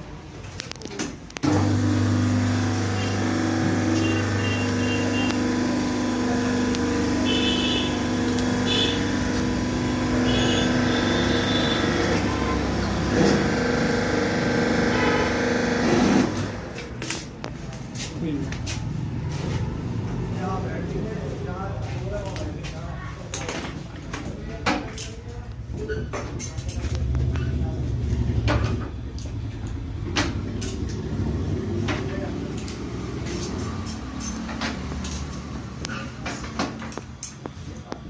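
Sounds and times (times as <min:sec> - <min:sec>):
electric motor humming: 0:01.4 - 0:16.6.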